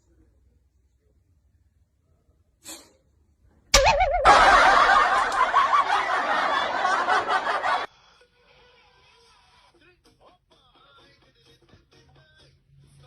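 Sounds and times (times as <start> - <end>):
loud sustained laughter: 3.8 - 7.9.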